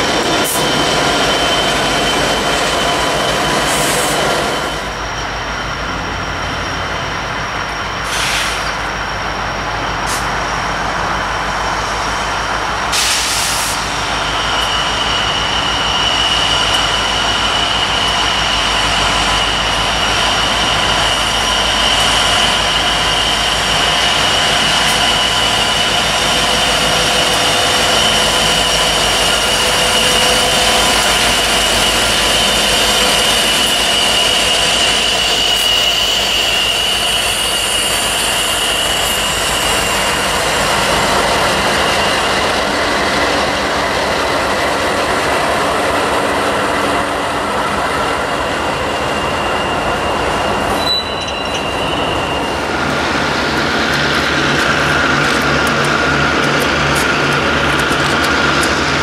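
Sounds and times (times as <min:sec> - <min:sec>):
diesel freight train passing: 0:00.0 - 0:59.0
wheel-on-rail noise: 0:13.8 - 0:59.0.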